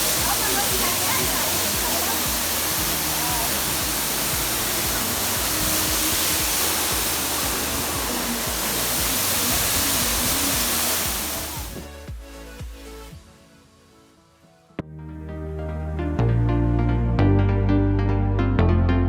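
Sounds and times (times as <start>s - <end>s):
waterfall rushing: 0.0s - 14.2s
background music: 0.0s - 19.0s.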